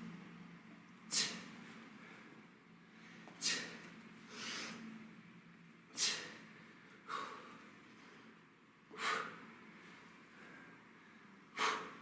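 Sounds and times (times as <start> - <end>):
man breathing hard: 1.1 - 5.0, 5.9 - 8.2, 8.9 - 12.0.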